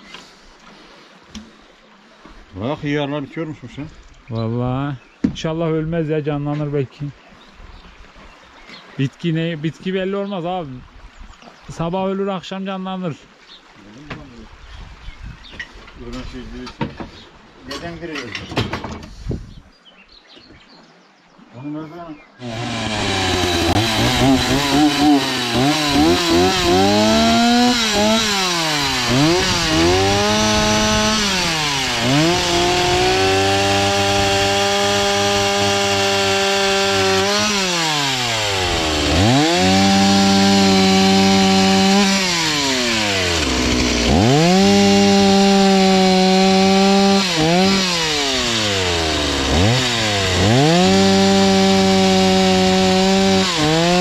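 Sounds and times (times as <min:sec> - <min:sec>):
power saw cutting wood: 0:22.4 - 0:54.0.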